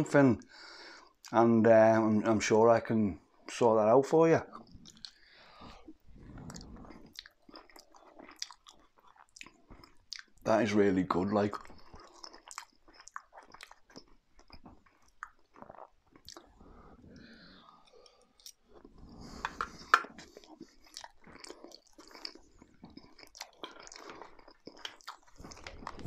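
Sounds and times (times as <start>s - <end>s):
man chewing: 4.5s - 10.4s, 11.6s - 26.0s.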